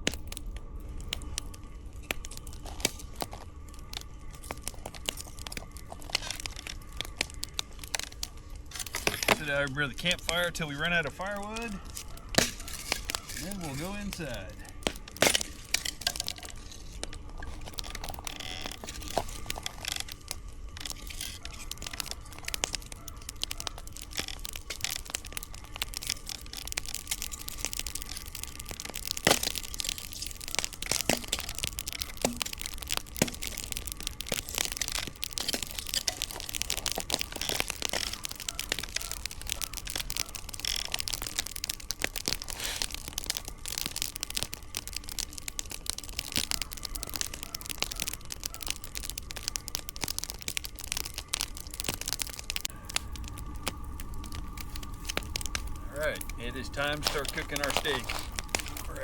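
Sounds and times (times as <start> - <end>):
campfire crackling: 0.0 - 59.0
faint steady hum: 52.4 - 59.0.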